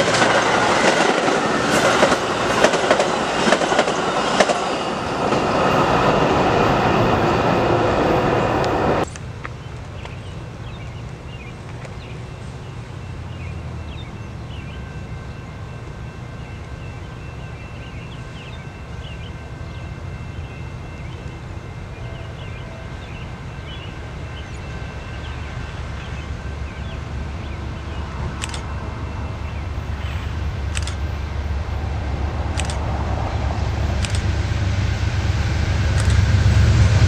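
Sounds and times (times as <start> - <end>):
train rumbling: 0.0 - 37.0
birds chirping: 9.6 - 31.2
sharp click: 28.4 - 28.7, 30.7 - 31.0, 32.6 - 32.8, 34.0 - 34.3, 36.0 - 36.2.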